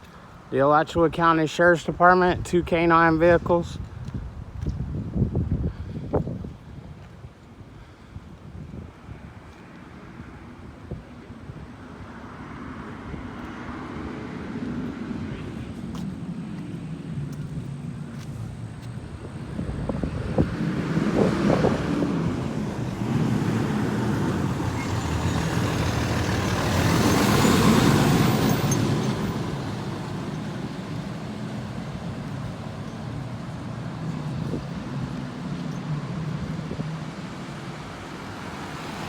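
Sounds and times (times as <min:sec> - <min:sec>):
low engine rumble: 0:15.3 - 0:39.0
vehicle driving past: 0:19.5 - 0:39.0.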